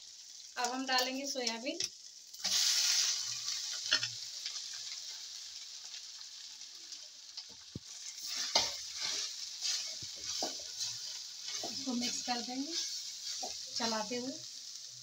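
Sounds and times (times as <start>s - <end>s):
food sizzling in hot oil: 0.0s - 15.0s
spatula scraping and stirring: 7.8s - 14.1s.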